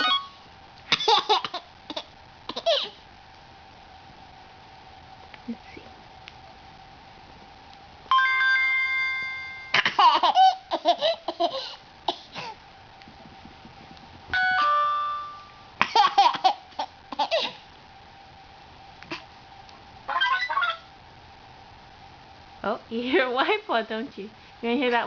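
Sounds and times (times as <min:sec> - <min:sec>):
phone alert chime: 0:08.1 - 0:09.7, 0:14.4 - 0:15.7
toddler laughing: 0:09.8 - 0:11.8.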